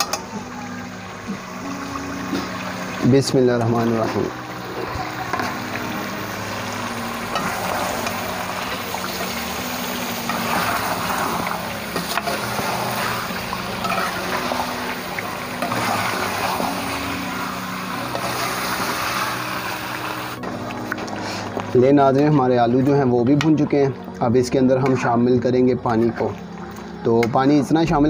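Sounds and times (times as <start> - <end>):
food sizzling in a pot: 0.0 - 21.6.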